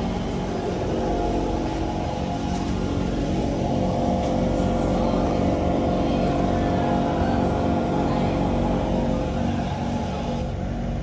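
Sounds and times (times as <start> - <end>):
low train rumble: 0.0 - 11.0
train electric whine: 0.0 - 11.0.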